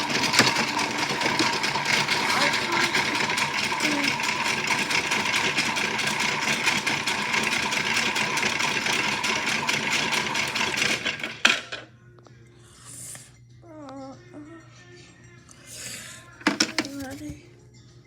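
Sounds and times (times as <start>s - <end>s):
toy motor rattling: 0.0s - 11.8s.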